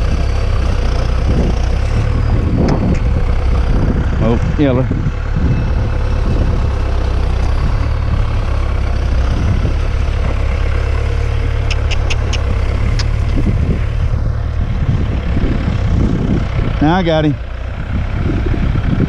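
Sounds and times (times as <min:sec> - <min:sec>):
tractor engine rumbling: 0:00.0 - 0:19.0
short sharp clicks: 0:11.6 - 0:13.2.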